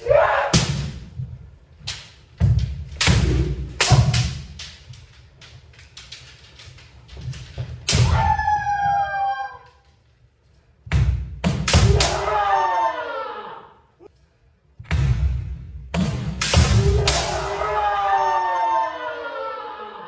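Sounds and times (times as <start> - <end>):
bamboo swords striking: 0.0 - 9.1, 10.9 - 12.4, 14.9 - 18.0
long shout: 8.0 - 9.8, 11.8 - 14.1, 16.8 - 20.0.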